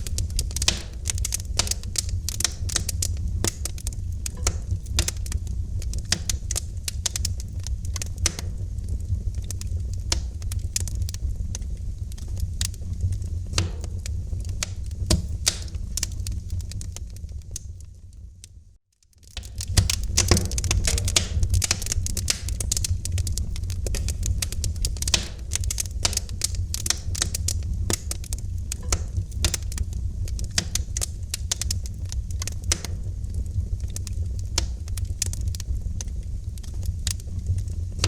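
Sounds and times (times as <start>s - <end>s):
flames rumbling: 0.0s - 38.0s
wood fire crackling: 0.0s - 38.0s.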